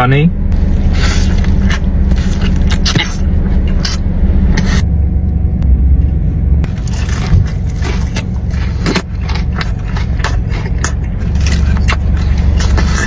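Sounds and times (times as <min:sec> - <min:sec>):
low rumble: 0:00.0 - 0:13.0
crunchy chewing of fried food: 0:00.6 - 0:04.8, 0:06.6 - 0:13.0.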